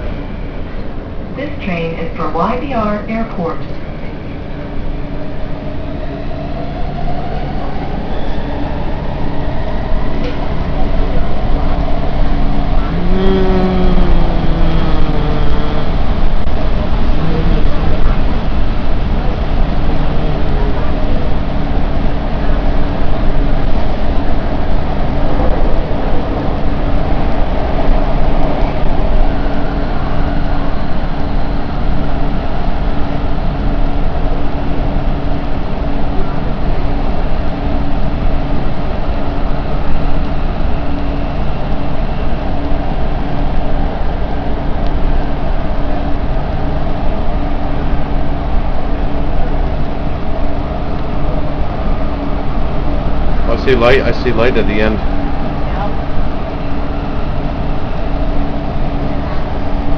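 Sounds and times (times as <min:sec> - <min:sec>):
metro train rumbling: 0:00.0 - 0:59.9
train motor hum: 0:08.6 - 0:59.9
low even hum: 0:11.0 - 0:25.0.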